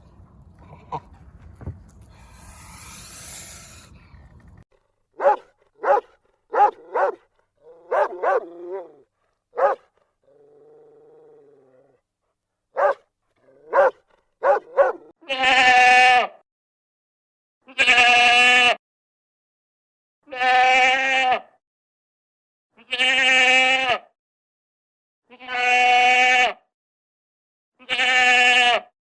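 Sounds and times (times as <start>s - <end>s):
dog barking: 5.2s - 8.8s, 9.6s - 10.0s, 12.8s - 15.1s
long bleat: 15.2s - 16.4s, 17.6s - 18.8s, 20.2s - 21.6s, 22.8s - 24.1s, 25.3s - 26.7s, 27.8s - 28.9s.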